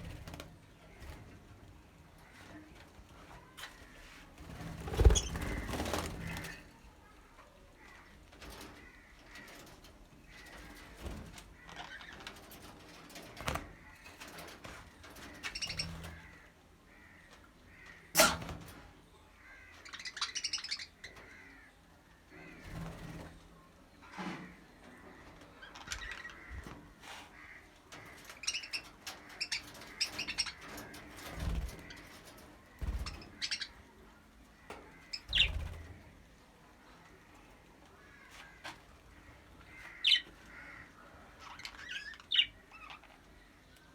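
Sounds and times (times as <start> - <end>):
budgerigars chirping: 35.2 - 35.6.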